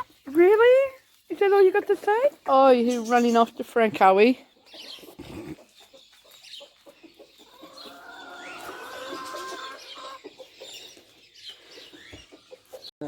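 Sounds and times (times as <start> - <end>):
hens calling: 4.6 - 12.9.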